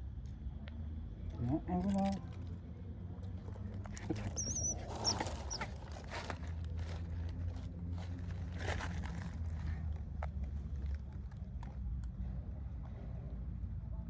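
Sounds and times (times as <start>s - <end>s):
rustling: 4.0s - 7.1s
monkey squeaking: 4.1s - 5.8s.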